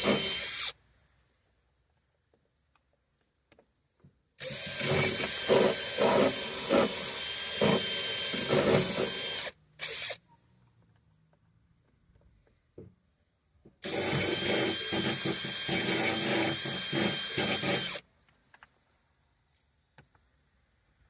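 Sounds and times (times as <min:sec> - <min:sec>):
cordless drill whining: 0:00.0 - 0:00.8, 0:04.4 - 0:10.2, 0:13.8 - 0:18.0.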